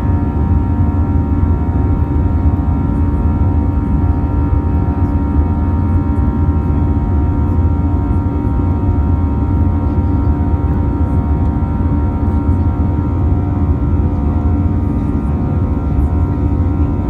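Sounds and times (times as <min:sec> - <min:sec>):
jet engine and airflow rumble: 0:00.0 - 0:17.0.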